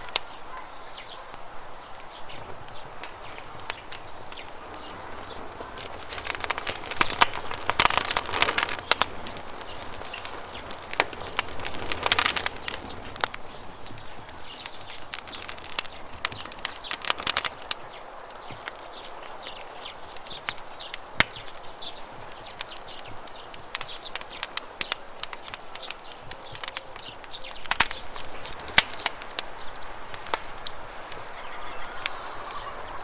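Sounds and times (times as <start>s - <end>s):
faint bird chirps: 0.0s - 2.5s, 29.6s - 33.0s
running water hiss: 0.0s - 24.8s, 27.5s - 33.0s
campfire crackling: 0.0s - 33.0s.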